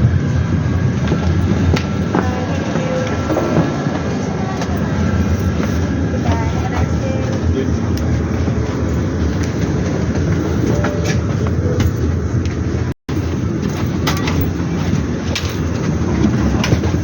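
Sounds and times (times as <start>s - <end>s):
vehicle ride rumble: 0.0s - 17.0s.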